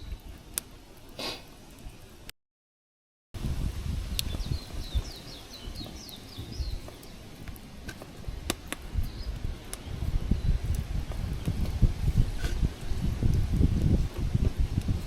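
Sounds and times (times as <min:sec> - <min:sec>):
small bird singing: 0:04.2 - 0:07.3, 0:09.0 - 0:11.6.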